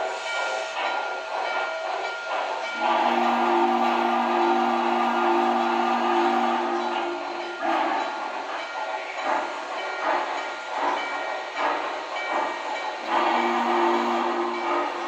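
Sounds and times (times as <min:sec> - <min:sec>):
steam locomotive chuffs with hiss: 0:00.0 - 0:15.0
train whistle chord: 0:02.8 - 0:08.2, 0:13.1 - 0:15.0.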